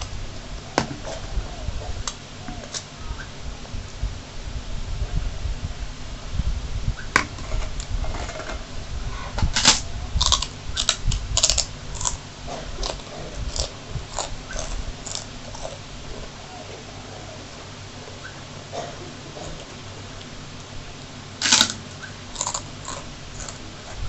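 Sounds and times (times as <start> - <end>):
cracker crunching: 9.4 - 16.4, 21.4 - 24.0
noodles being chewed: 9.6 - 16.3, 21.4 - 24.0.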